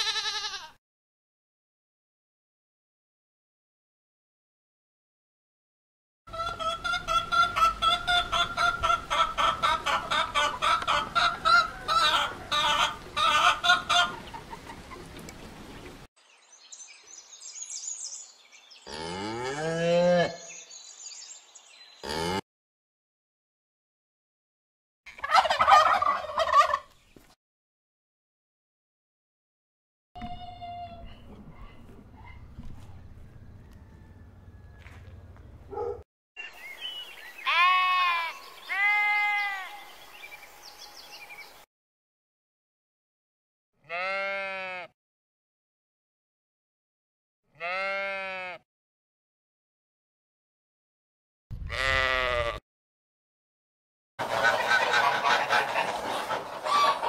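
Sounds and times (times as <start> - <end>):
lamb bleating: 0.0 - 0.8, 37.4 - 39.8, 43.8 - 44.9, 47.6 - 48.6, 51.7 - 52.6
cow mooing: 18.9 - 20.5, 22.0 - 22.4, 47.6 - 48.6.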